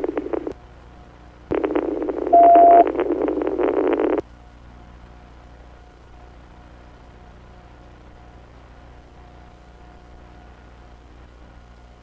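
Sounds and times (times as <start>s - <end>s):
radio static: 0.0s - 0.6s, 1.5s - 4.2s
steady radio beep: 1.5s - 4.2s.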